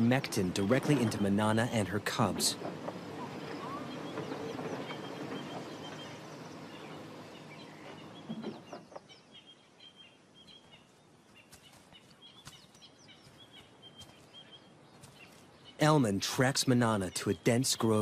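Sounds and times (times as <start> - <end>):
faint bird chirps: 2.9 - 16.2.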